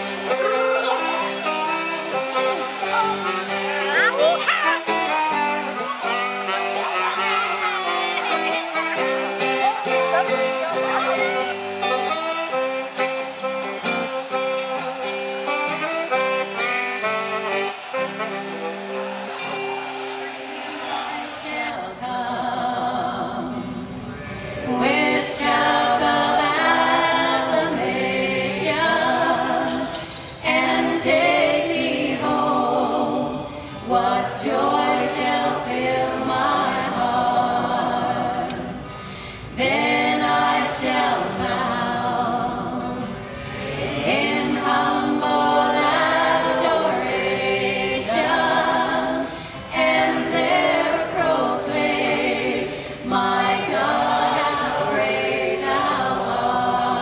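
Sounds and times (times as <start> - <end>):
women singing in harmony: 20.9 - 57.0.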